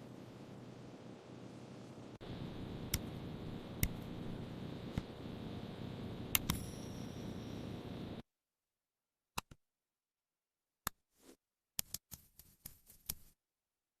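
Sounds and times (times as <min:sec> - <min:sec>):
background hiss: 0:00.0 - 0:08.2.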